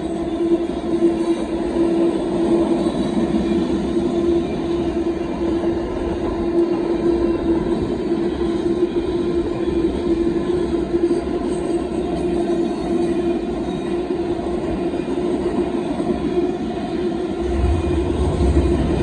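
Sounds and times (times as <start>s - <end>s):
train wheels clattering on rail: 0.0s - 19.0s
steady tone: 17.4s - 19.0s.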